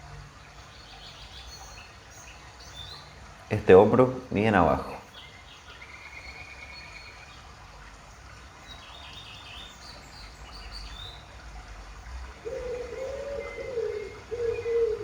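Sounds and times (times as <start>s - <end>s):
birds chirping and trilling: 0.5s - 7.5s, 12.4s - 15.0s
low cooing call: 12.4s - 15.0s.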